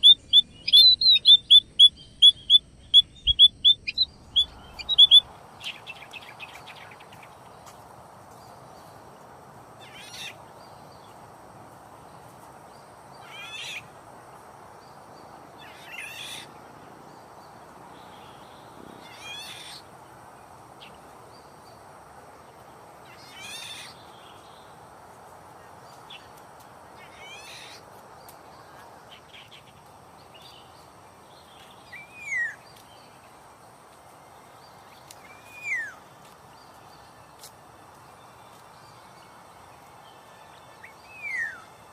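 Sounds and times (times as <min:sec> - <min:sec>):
downward-slurred bird whistle: 0:00.0 - 0:05.3, 0:35.3 - 0:36.0
steady outdoor hiss: 0:00.0 - 0:41.9.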